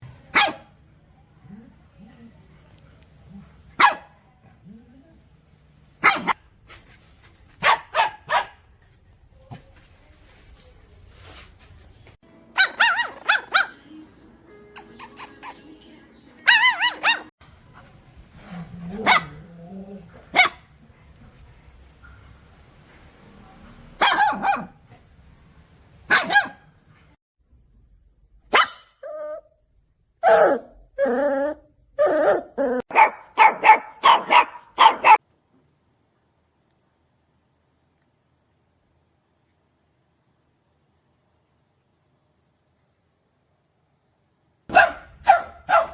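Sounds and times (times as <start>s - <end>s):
high-pitched puppy yaps: 0.3s - 0.6s, 3.8s - 4.1s, 6.0s - 6.4s, 7.6s - 8.6s, 12.6s - 13.8s, 16.5s - 17.3s, 24.0s - 24.7s, 26.1s - 26.6s, 28.5s - 29.4s, 30.2s - 30.7s, 32.0s - 35.2s, 44.7s - 45.9s
puppies barking: 3.8s - 4.1s, 6.0s - 6.4s, 7.6s - 8.6s, 12.6s - 13.8s, 16.5s - 25.1s, 26.0s - 26.7s, 32.9s - 35.2s, 44.7s - 45.9s.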